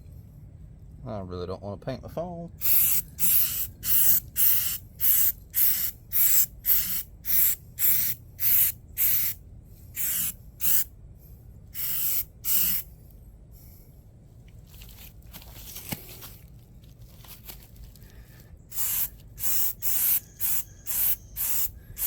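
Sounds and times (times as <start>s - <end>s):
aerosol can spraying: 2.6s - 9.4s, 10.0s - 10.9s, 11.8s - 12.9s, 18.7s - 22.0s.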